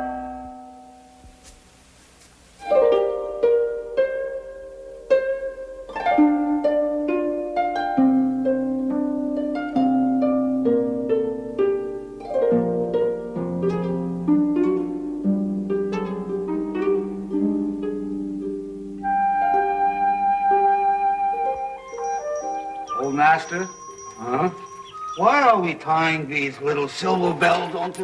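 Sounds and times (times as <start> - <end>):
harp and plucked strings melody: 2.6 - 26.5
flute holding a note: 19.0 - 25.8
held bowed string notes: 21.9 - 28.0.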